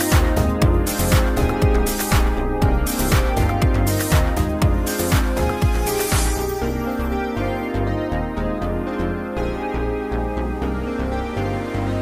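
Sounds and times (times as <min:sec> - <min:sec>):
kick drum beat: 0:00.0 - 0:06.5
electronic music: 0:00.0 - 0:12.0.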